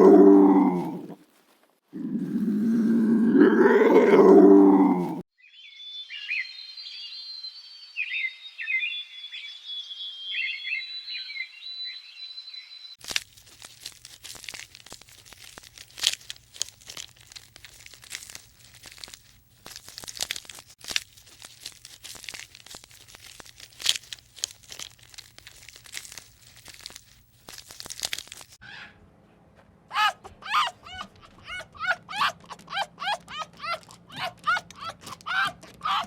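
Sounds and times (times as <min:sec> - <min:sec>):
animal whining calls: 0:00.0 - 0:01.2, 0:02.0 - 0:05.2, 0:29.9 - 0:36.0
crunching and crinkling: 0:00.0 - 0:05.2, 0:13.0 - 0:28.6, 0:29.4 - 0:36.0.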